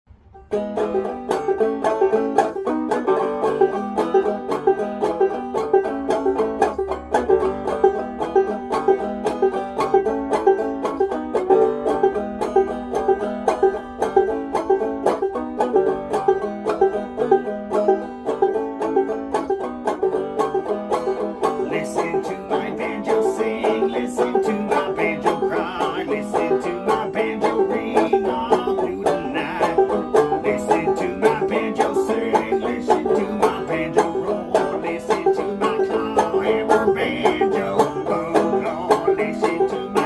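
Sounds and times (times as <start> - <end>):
banjo plucked notes: 0.1 - 40.0.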